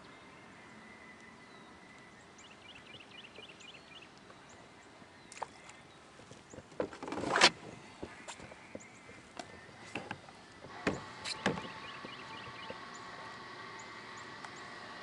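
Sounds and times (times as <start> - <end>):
small bird chirping: 7.8 - 14.8.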